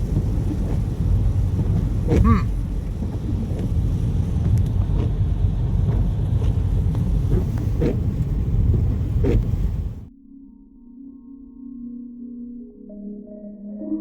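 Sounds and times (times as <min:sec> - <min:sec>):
wind buffeting microphone: 0:00.0 - 0:10.1.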